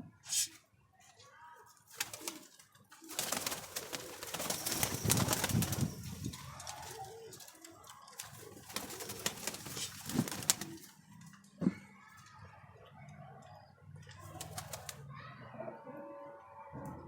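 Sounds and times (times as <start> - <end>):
pigeons cooing: 8.2 - 10.9, 14.2 - 17.0
rustling and scuffling: 9.5 - 10.8.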